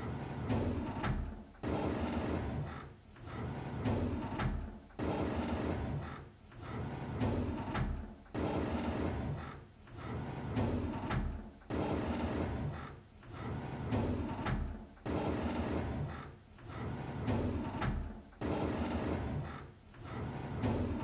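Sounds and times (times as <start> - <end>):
drawer sliding open: 8.8 - 21.0.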